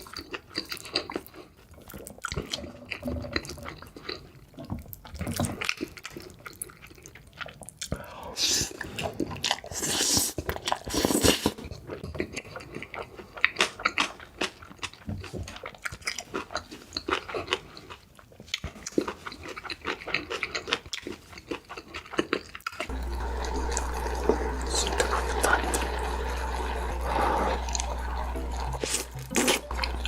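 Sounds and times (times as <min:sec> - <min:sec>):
person chewing and biting food: 0:00.0 - 0:23.0, 0:25.7 - 0:30.0
loud noisy burst: 0:22.9 - 0:30.0.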